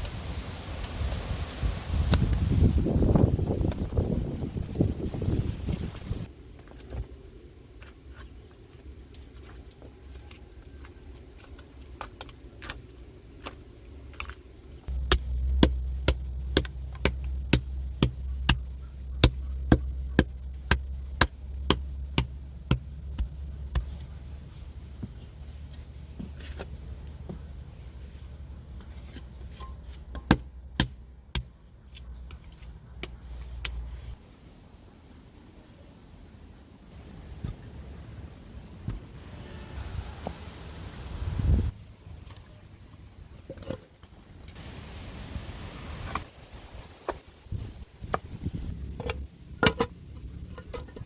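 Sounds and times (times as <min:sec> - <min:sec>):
low rumble: 0:14.8 - 0:26.1.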